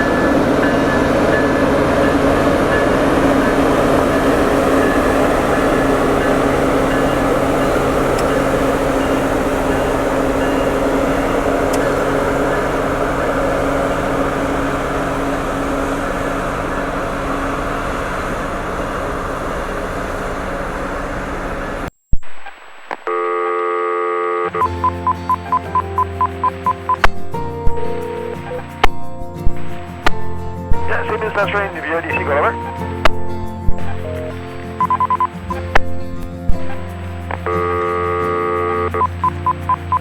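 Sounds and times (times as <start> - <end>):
train engine hum: 0.0 - 21.9, 24.6 - 40.0
held electronic tone: 22.1 - 28.9, 34.0 - 35.4, 37.4 - 40.0
quick run of beeps: 24.6 - 27.1, 34.2 - 35.4, 37.4 - 40.0.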